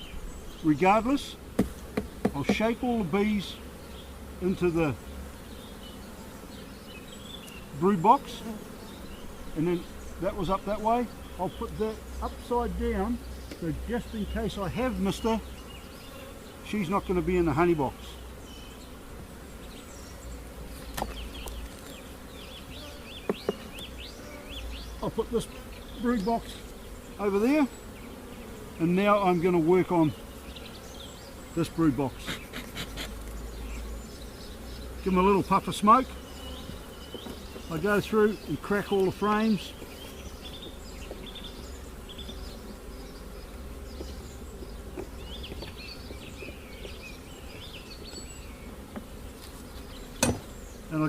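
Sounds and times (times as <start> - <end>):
bees buzzing: 0.0 - 51.0
light knocks: 50.2 - 50.5.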